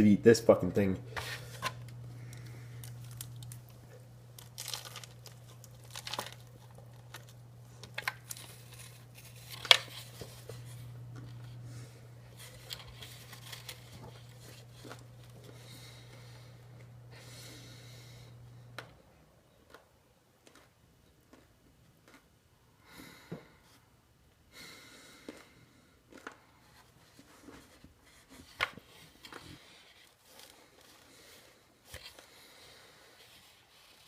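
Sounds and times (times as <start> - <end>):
low steady hum: 0.0 - 34.0
soft breaths: 1.0 - 3.1, 14.6 - 18.8, 22.8 - 34.0.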